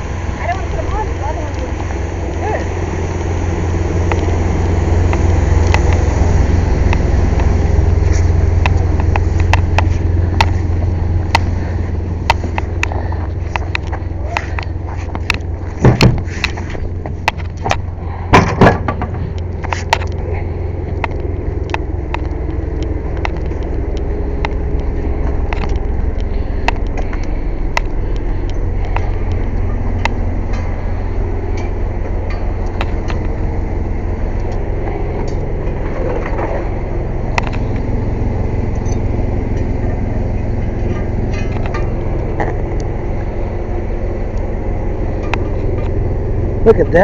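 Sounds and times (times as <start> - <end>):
air compressor running: 0.0 - 47.0.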